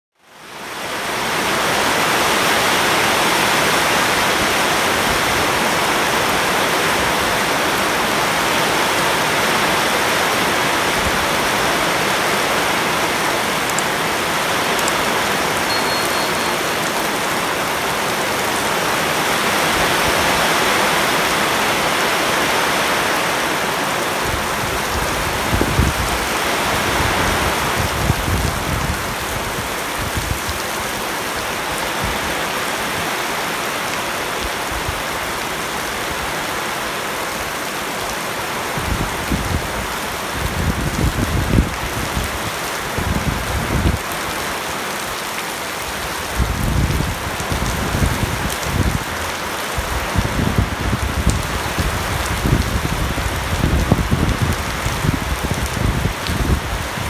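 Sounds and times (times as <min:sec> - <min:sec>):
heavy rain on leaves and water: 0:00.1 - 0:57.0.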